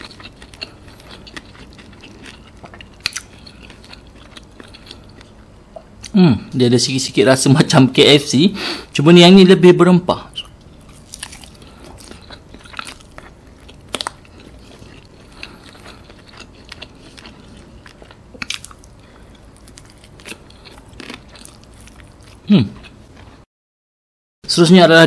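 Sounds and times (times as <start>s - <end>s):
fried chicken crunching: 0.0s - 5.3s, 10.6s - 23.4s.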